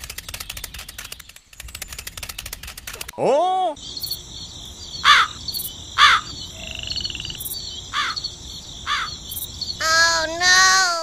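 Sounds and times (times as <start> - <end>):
bird calling: 3.2 - 11.0
high insect chirping: 3.8 - 11.0.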